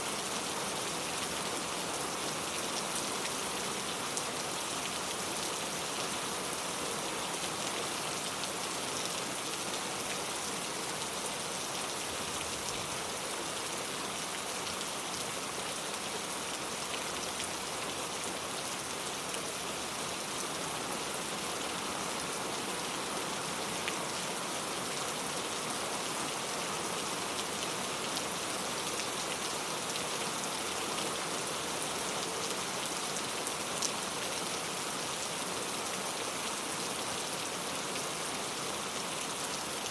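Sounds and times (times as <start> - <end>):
rain downpour hiss: 0.0 - 39.9.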